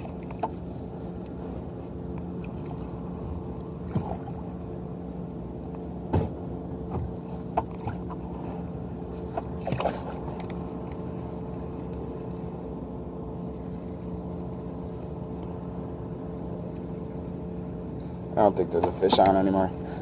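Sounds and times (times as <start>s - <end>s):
steady low hum: 0.0s - 20.0s
knocks and taps on kayak: 6.1s - 7.8s.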